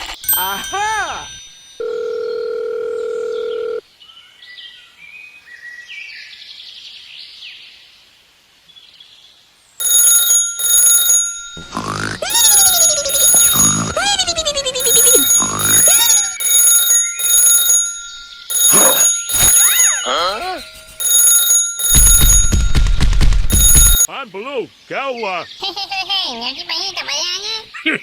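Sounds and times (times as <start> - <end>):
alarm bell ringing: 0.2 - 3.8, 9.8 - 24.1.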